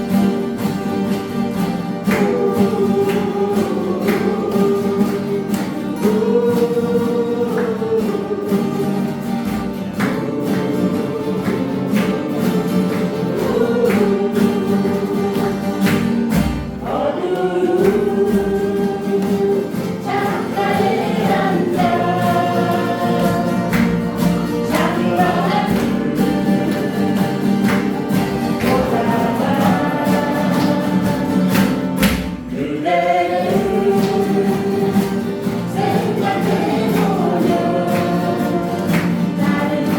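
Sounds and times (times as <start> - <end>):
acoustic guitar: 0.0 - 39.9
group singing in chorus: 1.5 - 39.9.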